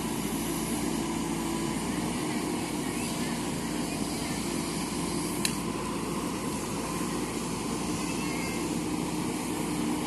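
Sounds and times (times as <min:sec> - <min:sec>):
diesel engine running: 0:00.0 - 0:10.0
sharp click: 0:05.4 - 0:05.6.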